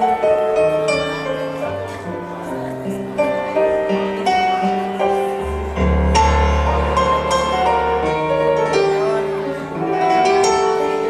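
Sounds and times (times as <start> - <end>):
piano-led instrumental music: 0.0 - 11.0.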